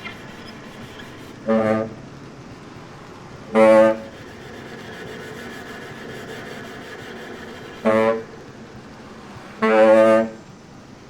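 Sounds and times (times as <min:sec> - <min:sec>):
low baritone saxophone honk: 0:01.3 - 0:02.2, 0:03.3 - 0:04.4, 0:07.8 - 0:10.8
viola and saxophone chamber music: 0:01.3 - 0:04.7, 0:07.8 - 0:11.0.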